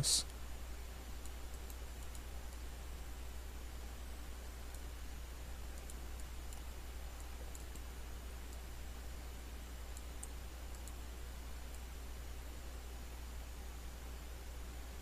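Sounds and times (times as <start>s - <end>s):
electrical hum and hiss: 0.0s - 15.0s
mouse and keyboard clicks: 1.2s - 2.6s, 5.7s - 7.9s, 9.9s - 11.0s.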